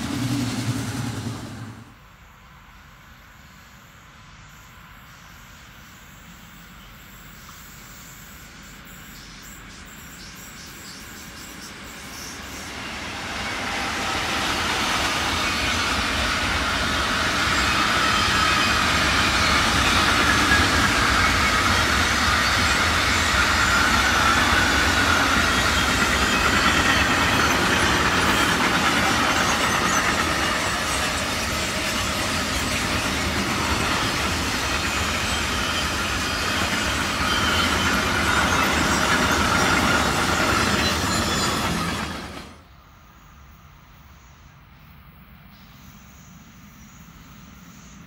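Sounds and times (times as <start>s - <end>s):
train wheels rumbling and rattling: 0.0s - 2.2s, 9.4s - 42.7s.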